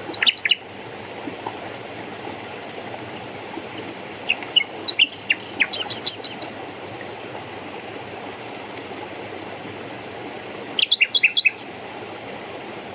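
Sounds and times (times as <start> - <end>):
songbird chirping: 0.0 - 0.6, 3.8 - 6.6, 9.1 - 11.7
stream water running: 0.0 - 12.9.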